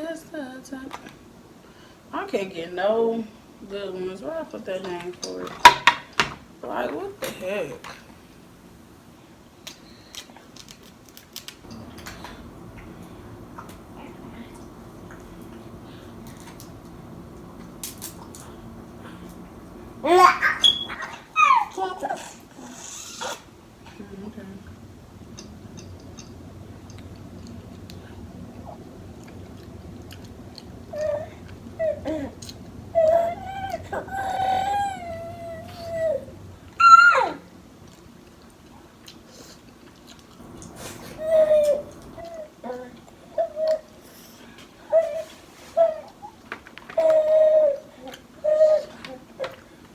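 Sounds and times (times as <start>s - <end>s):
crab shells cracking: 10.6s - 20.0s
baby squealing: 20.0s - 22.2s, 33.0s - 37.4s
person chewing: 29.2s - 30.8s.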